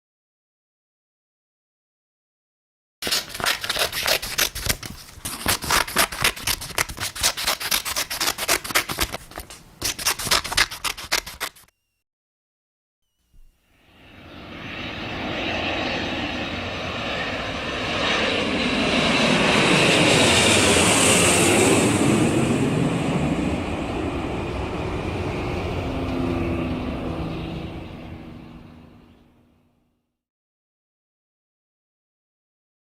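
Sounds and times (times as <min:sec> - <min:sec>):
aeroplane flying overhead: 0:13.6 - 0:30.0.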